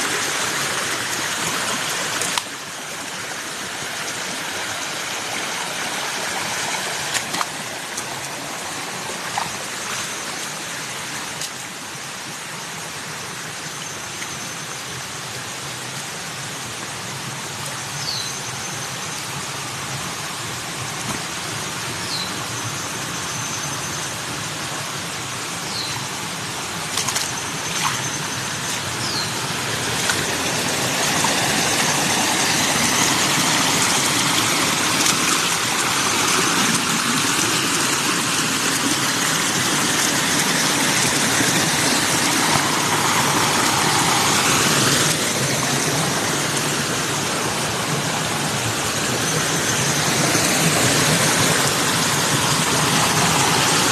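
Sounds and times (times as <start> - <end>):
steady rushing noise: 26.1 - 53.9.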